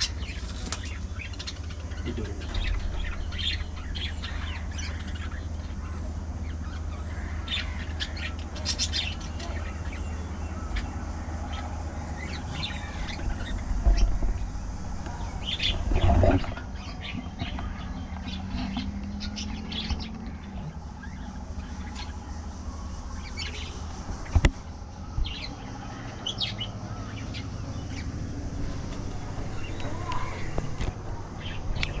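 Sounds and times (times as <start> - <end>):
budgerigars chirping: 0.0 - 14.2
steady low hum: 0.0 - 32.0.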